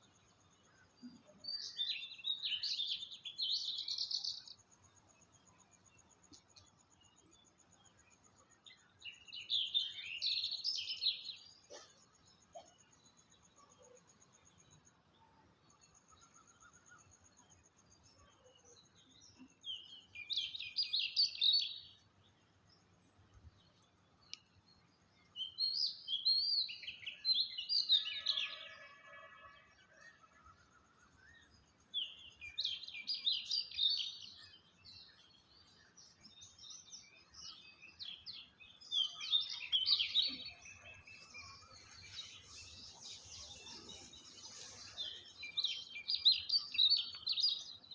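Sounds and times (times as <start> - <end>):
birds chirping: 30.2 - 47.9.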